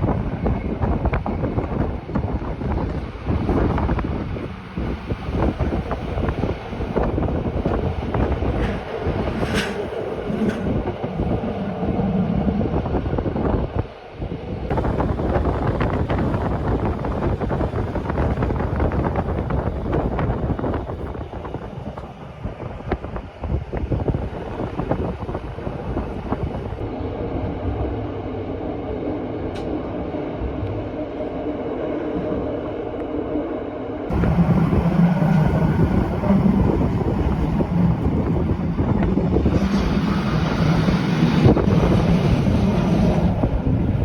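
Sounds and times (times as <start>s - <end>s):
train wheels clattering on rails: 0.0s - 11.8s, 34.1s - 44.0s
steady hum: 25.4s - 44.0s.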